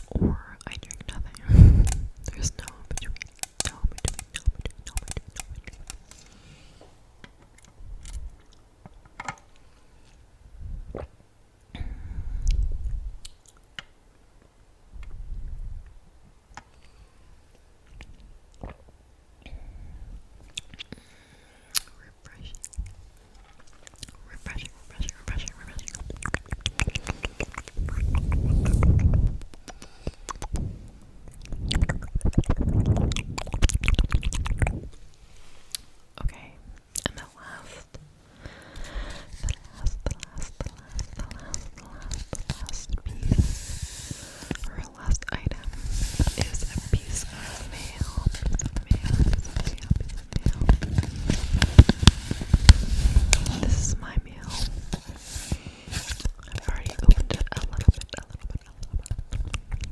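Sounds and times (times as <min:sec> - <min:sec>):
wet mouth clicks and smacks: 0:00.0 - 0:06.3, 0:12.4 - 0:13.7, 0:20.5 - 0:20.9, 0:21.7 - 0:23.0, 0:23.6 - 0:35.1, 0:36.8 - 0:37.2, 0:39.3 - 0:43.4, 0:47.9 - 0:52.2, 0:56.0 - 0:59.9
soft breath: 0:01.4 - 0:02.1, 0:06.2 - 0:07.1, 0:11.7 - 0:12.8, 0:16.7 - 0:17.5, 0:19.4 - 0:20.2, 0:20.9 - 0:22.1, 0:24.3 - 0:31.2, 0:37.4 - 0:56.2
low rumbling: 0:25.2 - 0:29.5.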